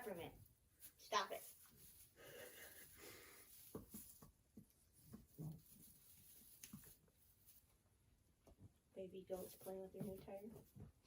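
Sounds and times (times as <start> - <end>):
faint short knocks and rustles: 3.5 - 7.6.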